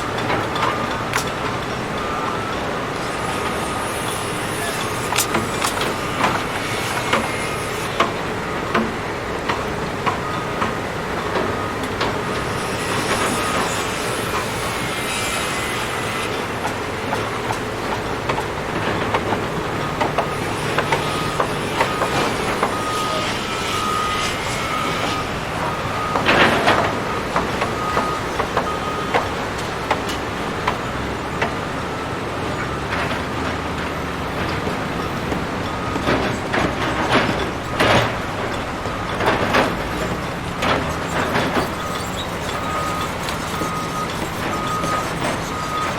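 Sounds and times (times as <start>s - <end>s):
heavy demolition machinery running: 0.0s - 45.9s
thin squeal: 40.8s - 45.9s.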